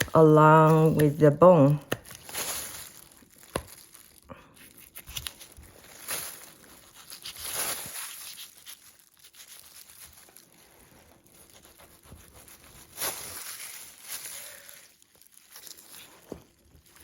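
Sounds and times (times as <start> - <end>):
knife slicing and scraping meat: 11.2 - 14.0.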